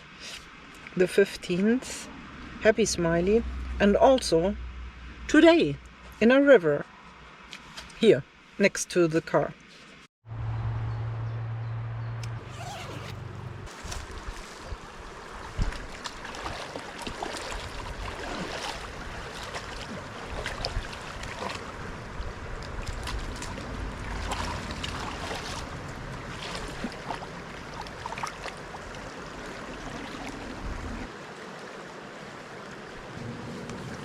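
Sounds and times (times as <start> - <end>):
river water flowing and splashing: 0.0 - 6.2, 12.4 - 34.0
wind rumbling on microphone: 10.3 - 28.2, 28.8 - 31.1.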